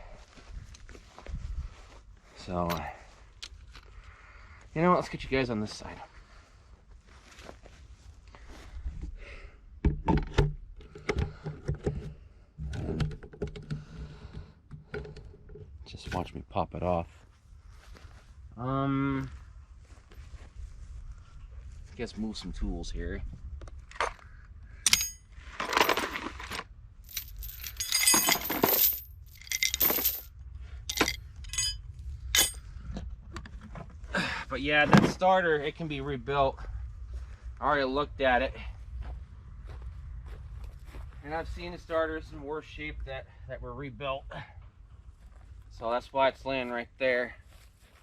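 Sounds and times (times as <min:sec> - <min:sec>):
camera stand knocks and clicks: 0:09.9 - 0:15.6
handling clatter: 0:24.9 - 0:30.3, 0:30.9 - 0:32.6.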